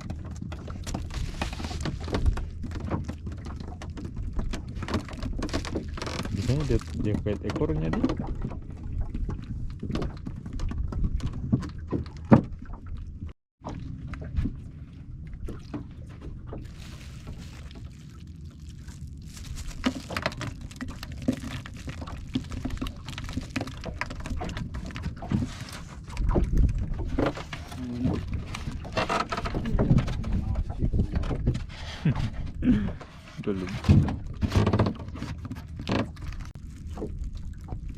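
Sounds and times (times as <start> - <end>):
knocks and clatters on boat: 0.0 - 17.4, 19.8 - 37.9
water sloshing against hull: 0.0 - 37.9
steady low rumble: 13.1 - 23.9.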